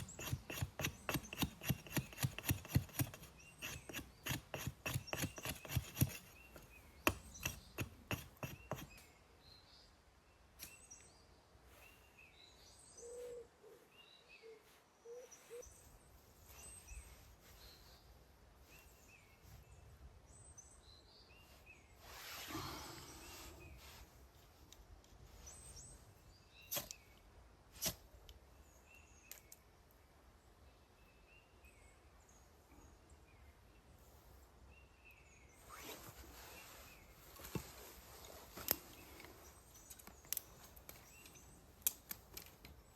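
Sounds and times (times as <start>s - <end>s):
rasping strokes on wood: 0.0s - 6.5s, 7.1s - 9.0s
small birds chirping: 0.0s - 22.2s, 28.3s - 42.9s
short rustle: 35.6s - 39.6s.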